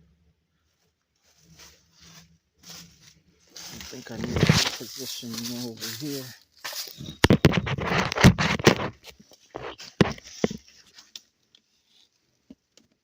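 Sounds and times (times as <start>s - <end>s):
phone handling scratching and clicking: 4.1s - 4.9s, 6.7s - 10.6s.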